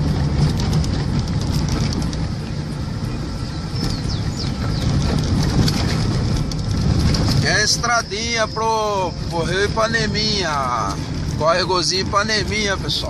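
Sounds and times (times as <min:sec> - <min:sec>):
car knocks and rattles: 0:00.0 - 0:08.4
engine and tyres rumbling: 0:00.0 - 0:13.0.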